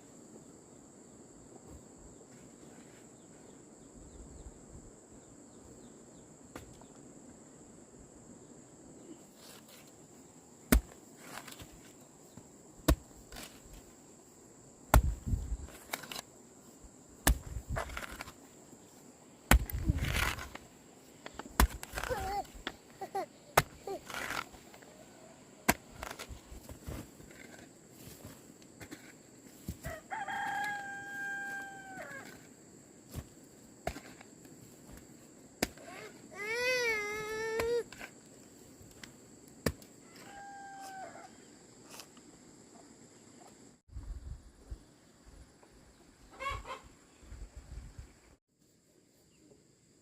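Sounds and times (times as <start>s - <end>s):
hand tool chopping: 10.7s - 11.8s, 12.8s - 13.6s, 14.9s - 16.2s, 17.2s - 18.4s, 19.5s - 20.6s, 21.3s - 22.8s, 23.6s - 24.6s, 33.1s - 34.2s, 35.6s - 36.0s.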